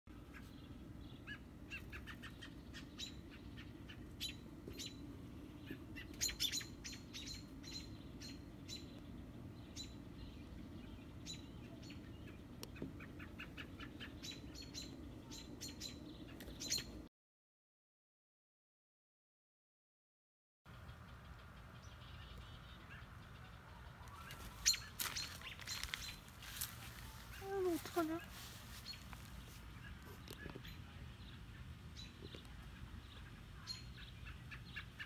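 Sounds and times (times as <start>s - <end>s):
low steady rumble: 0.1s - 16.3s
birds chirping: 0.1s - 17.1s, 20.7s - 35.0s.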